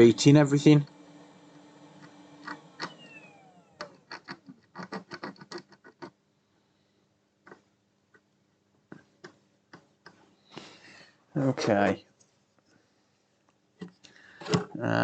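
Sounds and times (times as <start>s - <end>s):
soldering iron clicks and scratches: 3.8s - 6.2s.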